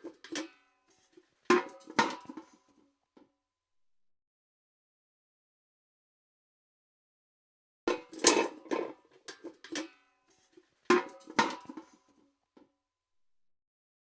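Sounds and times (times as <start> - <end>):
steel bucket clanking: 0.0 - 2.6, 7.9 - 12.0.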